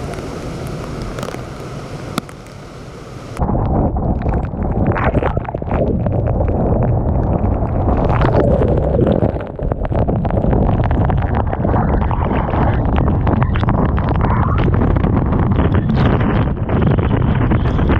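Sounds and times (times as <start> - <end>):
waves rushing: 0.0 - 3.5
crackle of sharp hits: 0.0 - 17.9
wind buffeting microphone: 0.0 - 17.9.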